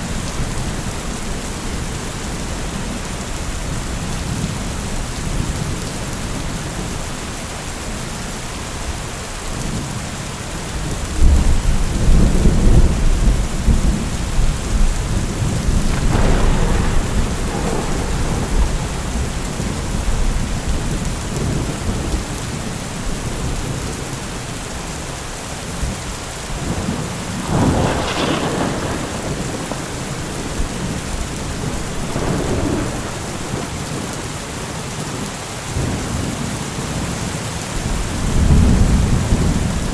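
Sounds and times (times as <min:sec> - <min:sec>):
steady rain falling: 0:00.0 - 0:39.9
rolling thunder: 0:11.0 - 0:24.2, 0:25.7 - 0:39.9
sharp thunderclap: 0:11.2 - 0:22.4, 0:26.5 - 0:34.6, 0:37.8 - 0:39.9.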